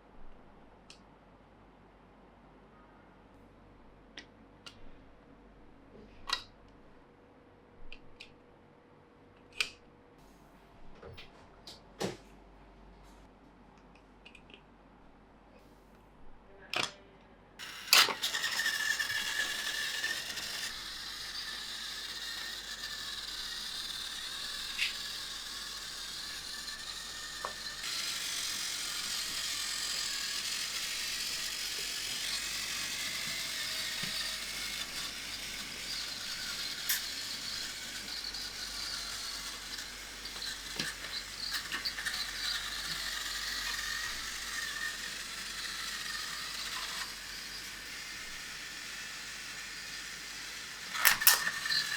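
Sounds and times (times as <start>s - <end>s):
toy train motor whirring: 17.6s - 51.9s
toy train rattling on track: 17.6s - 51.9s
toy train switch click: 17.6s - 51.9s.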